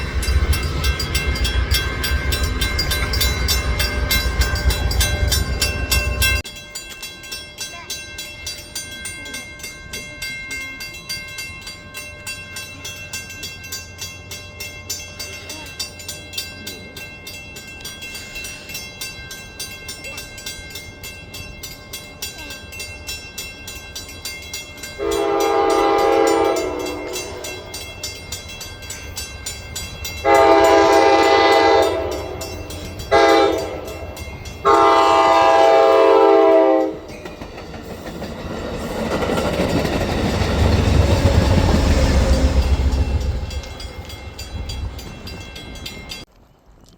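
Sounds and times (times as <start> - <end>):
train horn: 25.0 - 27.7, 30.2 - 34.0, 34.6 - 37.1.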